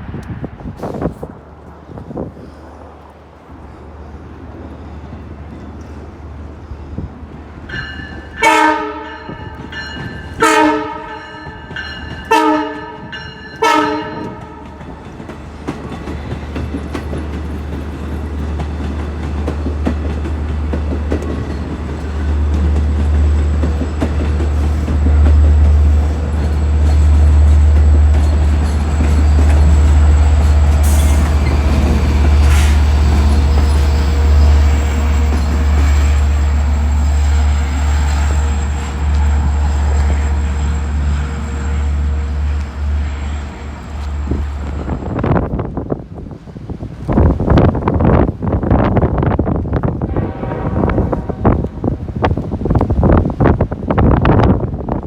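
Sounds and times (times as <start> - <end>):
train rumbling past on rails: 0.0 - 55.0
train horn blasts: 8.4 - 9.6, 10.3 - 14.8, 37.6 - 44.5, 50.1 - 52.1.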